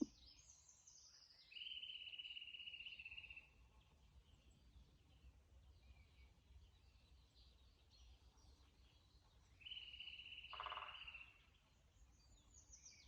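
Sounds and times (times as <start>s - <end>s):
songbird singing trills: 7.9s - 13.0s
faint bird chirps: 8.1s - 11.6s.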